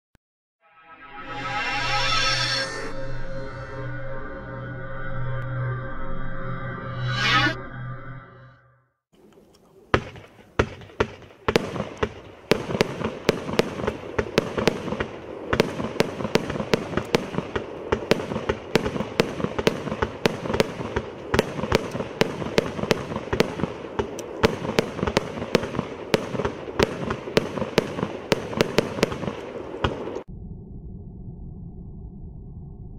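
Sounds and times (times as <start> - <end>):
firework bangs: 9.9 - 30.3.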